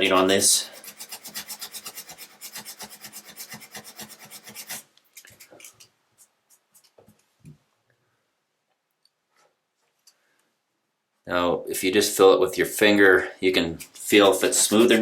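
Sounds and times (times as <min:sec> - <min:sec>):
sandpaper rubbing back and forth: 0:00.0 - 0:05.9, 0:13.6 - 0:15.0.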